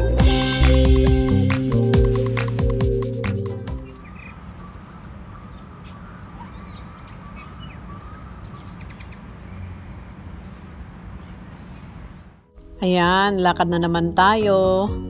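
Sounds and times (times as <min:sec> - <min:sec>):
birds chirping: 0:01.7 - 0:12.5.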